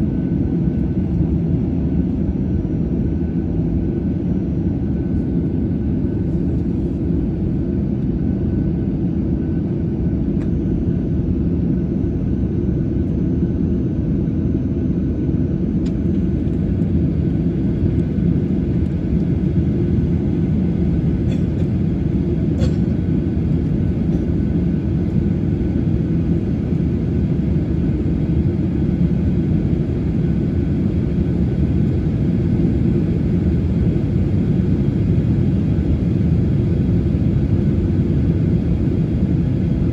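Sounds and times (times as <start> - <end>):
jet engines idling: 15.7 - 39.9.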